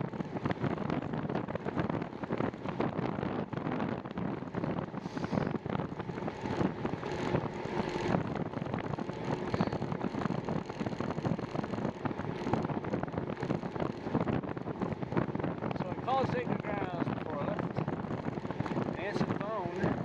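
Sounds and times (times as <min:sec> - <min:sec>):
bicycle knocks and rattles: 0:00.0 - 0:15.8
wind buffeting microphone: 0:00.0 - 0:20.0.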